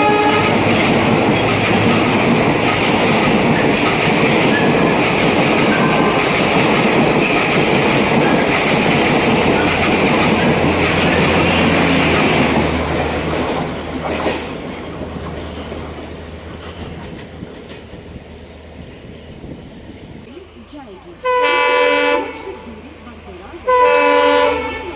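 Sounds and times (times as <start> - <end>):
train wheels clattering over rails: 0.0 - 18.2.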